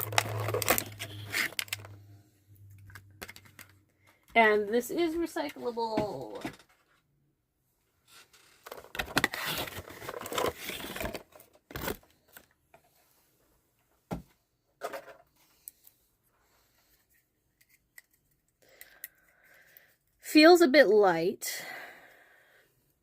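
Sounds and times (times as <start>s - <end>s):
packaging rustling and tearing: 0.0s - 2.0s, 8.4s - 12.5s.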